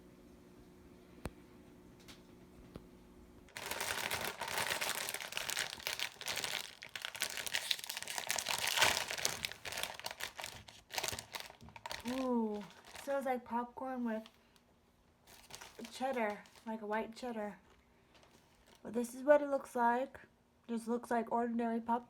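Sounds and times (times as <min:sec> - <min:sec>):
faint hum: 0:00.0 - 0:22.0
popcorn bag crinkling: 0:03.5 - 0:13.3, 0:14.1 - 0:14.6, 0:15.2 - 0:18.9.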